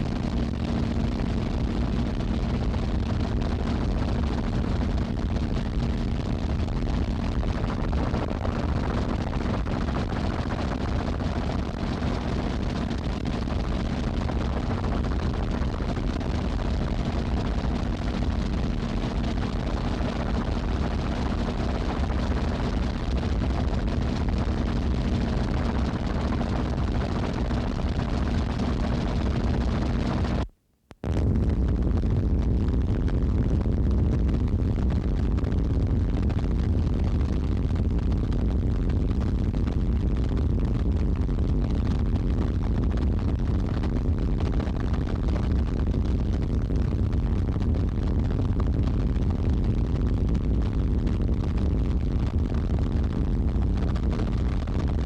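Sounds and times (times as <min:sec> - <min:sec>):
engine running with hum: 0:18.2 - 0:30.5.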